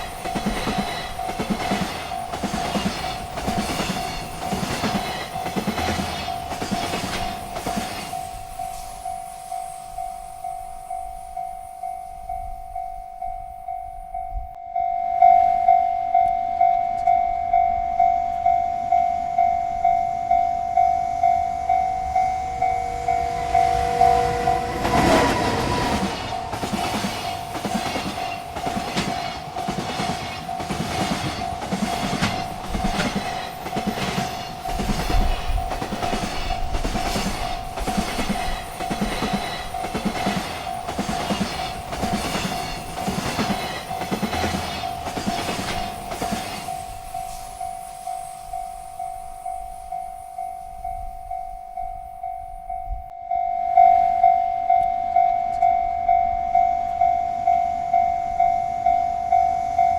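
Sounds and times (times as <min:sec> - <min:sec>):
wheels clacking over rail joints: 0:00.0 - 0:08.6, 0:21.6 - 0:47.3
freight train passing: 0:00.0 - 0:59.9
railroad crossing bell ringing: 0:00.0 - 0:59.9.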